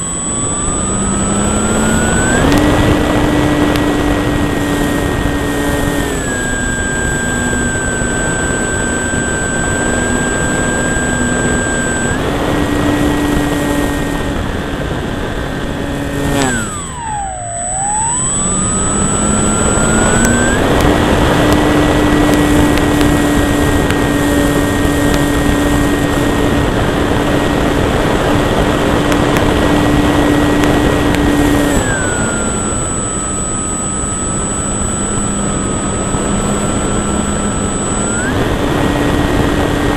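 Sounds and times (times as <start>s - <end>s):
model plane motor whine: 0.0s - 39.9s
wind rush: 1.0s - 17.0s, 18.1s - 32.7s.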